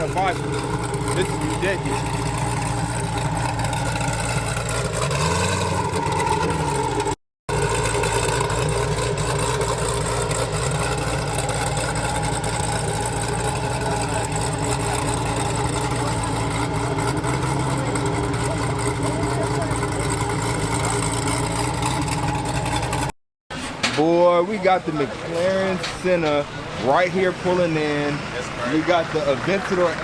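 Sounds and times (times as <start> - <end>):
engine revving: 0.0 - 23.2
car engines idling: 0.0 - 30.0.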